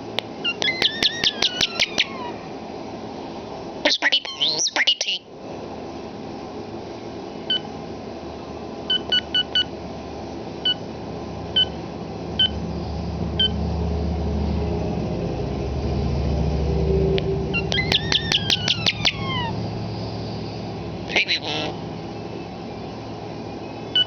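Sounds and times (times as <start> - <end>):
bird mimicking electronic beeps: 0.4 - 2.3, 3.9 - 5.2, 17.6 - 19.6, 21.1 - 21.8
bird clicks and falling whistles: 0.5 - 2.1, 17.6 - 19.2
low rumble: 12.2 - 21.1.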